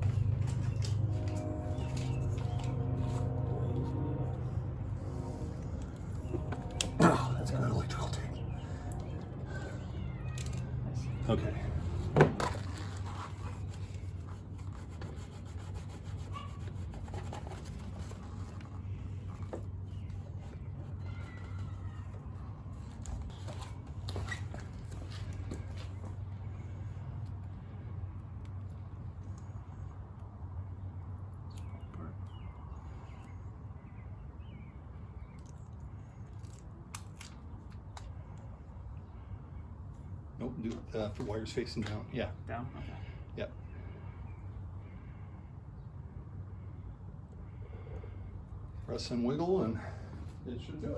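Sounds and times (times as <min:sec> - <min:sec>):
hands rubbing and scraping wiring: 0:00.0 - 0:26.2
steady low hum: 0:00.0 - 0:50.9.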